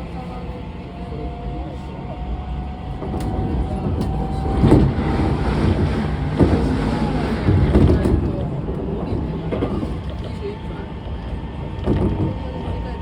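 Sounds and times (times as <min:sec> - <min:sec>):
train rumbling: 0:00.0 - 0:13.0
knocks: 0:04.0 - 0:10.1.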